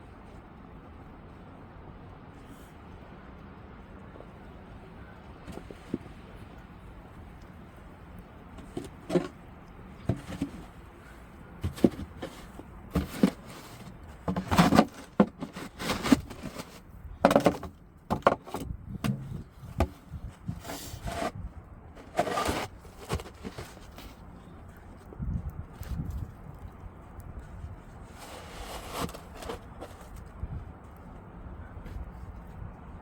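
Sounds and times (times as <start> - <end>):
shovel scraping snow: 11.6 - 17.7, 20.4 - 21.4, 22.0 - 24.2, 28.1 - 30.2.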